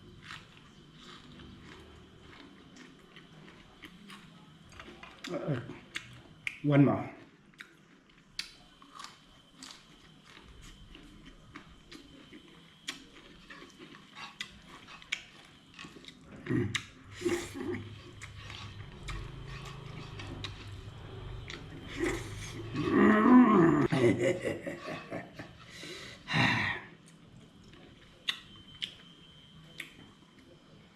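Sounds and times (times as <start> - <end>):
mouth chewing food: 0.0 - 6.6, 7.2 - 23.2.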